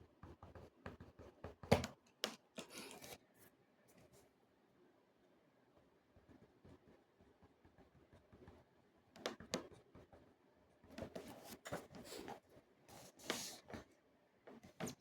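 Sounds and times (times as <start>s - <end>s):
scratching and rustling handling noise: 2.6s - 4.3s, 11.0s - 13.9s.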